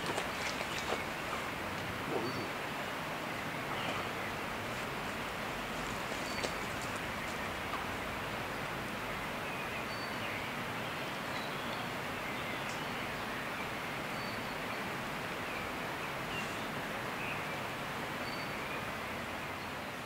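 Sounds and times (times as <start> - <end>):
outdoor background hiss: 0.0 - 20.0
faint bird chirps: 2.1 - 2.6.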